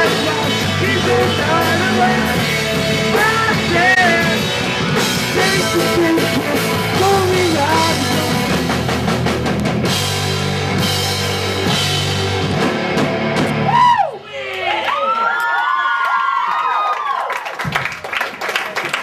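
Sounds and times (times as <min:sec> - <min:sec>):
punk rock band playing: 0:00.0 - 0:14.0.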